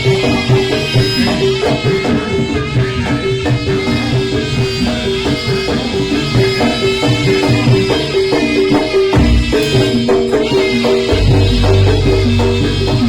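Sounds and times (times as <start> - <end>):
steady percussion: 0.0 - 13.0
gamelan melody: 11.1 - 13.0.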